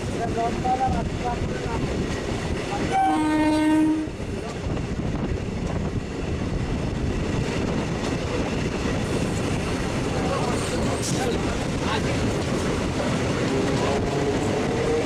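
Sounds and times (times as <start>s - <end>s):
electric train running: 0.0s - 15.0s
passing train: 0.0s - 15.0s
train horn: 2.9s - 4.2s.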